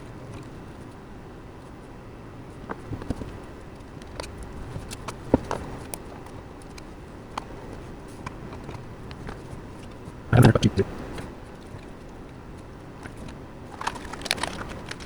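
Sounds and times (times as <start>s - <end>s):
steady low hum: 10.1s - 13.6s.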